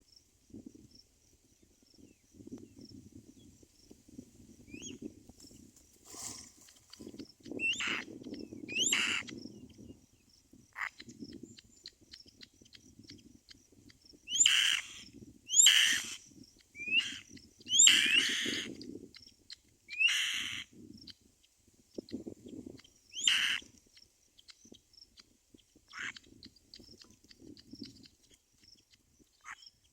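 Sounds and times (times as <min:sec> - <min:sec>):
baby birds calling: 0:06.1 - 0:09.4, 0:14.3 - 0:18.8, 0:20.0 - 0:20.6, 0:23.1 - 0:23.7.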